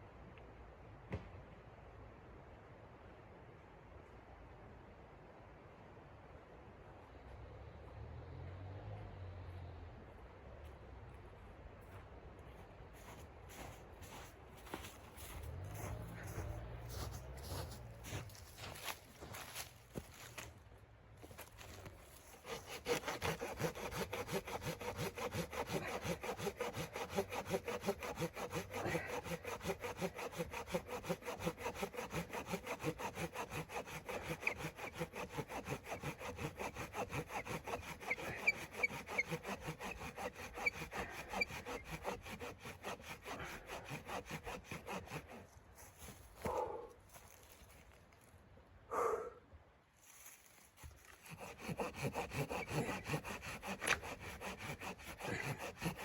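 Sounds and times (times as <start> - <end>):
hand saw cutting wood: 14.7 - 19.6, 22.2 - 46.6, 50.7 - 56.0.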